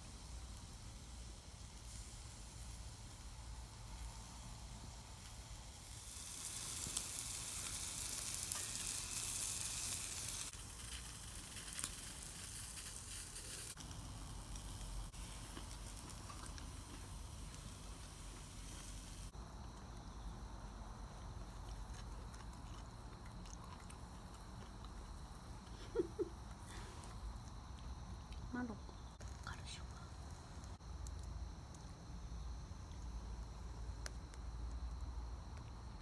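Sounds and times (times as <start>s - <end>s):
food sizzling in a skillet: 0.0s - 19.4s.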